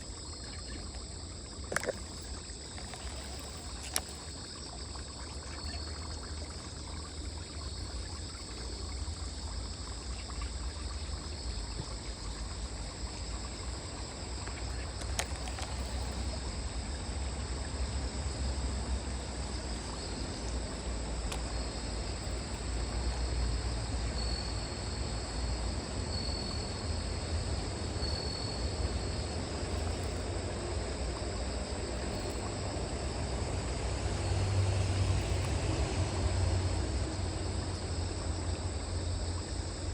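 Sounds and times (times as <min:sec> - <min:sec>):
insects chirring: 0:00.0 - 0:39.9
water trickling: 0:00.0 - 0:39.9
faint clicks: 0:01.7 - 0:04.3, 0:14.4 - 0:16.3.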